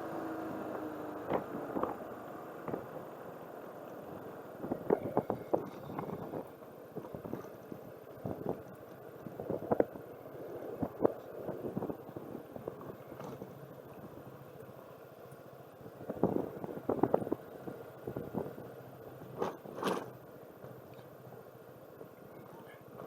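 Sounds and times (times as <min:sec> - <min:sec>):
low running hum: 0:00.0 - 0:23.0
car knocks and crackles: 0:02.6 - 0:02.9.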